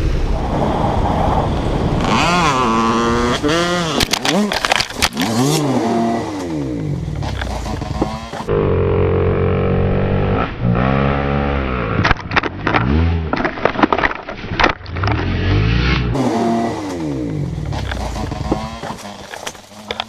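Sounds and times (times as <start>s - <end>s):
vehicle engine revving: 1.8s - 13.4s, 14.9s - 20.0s
sharp clicks and knocks: 4.0s - 5.6s, 12.0s - 15.3s, 17.6s - 20.0s.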